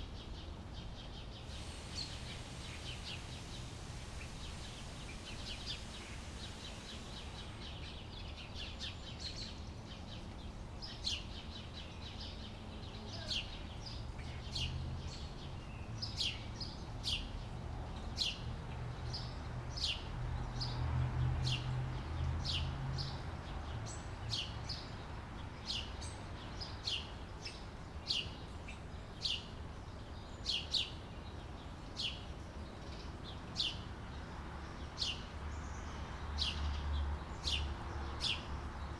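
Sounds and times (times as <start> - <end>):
bird chirping: 0.2 - 17.3
steady low rumble: 1.5 - 8.4.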